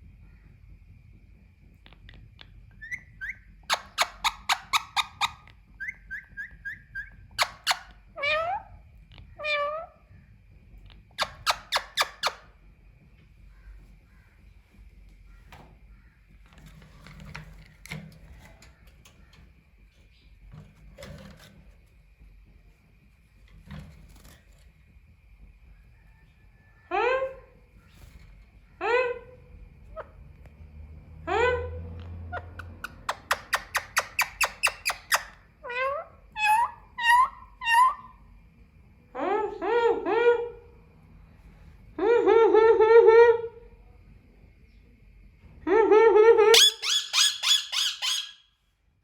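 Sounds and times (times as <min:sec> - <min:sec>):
parakeet chatter: 0:02.0 - 0:09.9, 0:11.0 - 0:12.5, 0:32.3 - 0:38.2, 0:46.6 - 0:48.4
parakeet shrieking: 0:02.8 - 0:08.7, 0:09.3 - 0:09.9, 0:32.4 - 0:38.1, 0:46.5 - 0:48.5
parakeet meow-like calls: 0:02.8 - 0:10.1.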